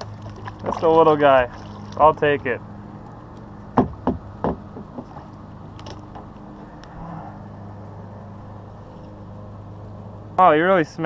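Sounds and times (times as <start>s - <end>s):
steady low hum: 0.0s - 11.0s
sharp knocks: 3.7s - 5.2s
faint ticks: 4.7s - 7.0s.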